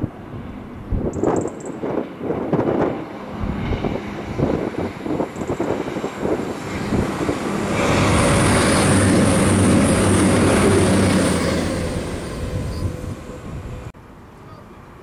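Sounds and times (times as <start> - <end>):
wind buffeting microphone: 0.0 - 13.9
diesel train engines droning: 3.1 - 15.0.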